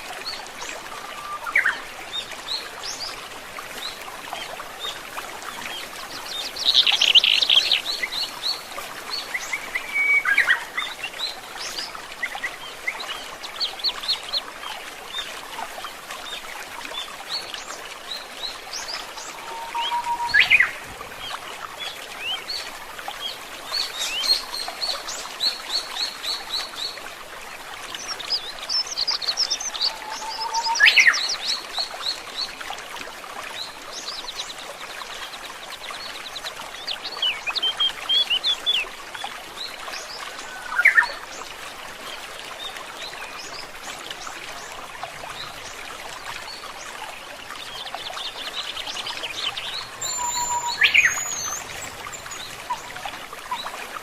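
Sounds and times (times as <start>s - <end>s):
flowing stream water: 0.0s - 54.0s
rising whistle bird call: 19.4s - 20.7s, 50.0s - 51.4s
bird trills and chirps: 19.4s - 20.8s, 48.7s - 53.8s.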